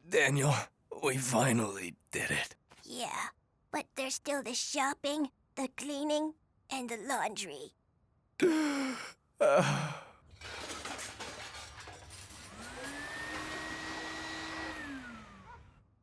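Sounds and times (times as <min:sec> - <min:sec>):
cartoon sighs: 0:08.4 - 0:10.2
cartoon vacuum cleaner whirring: 0:12.2 - 0:15.8.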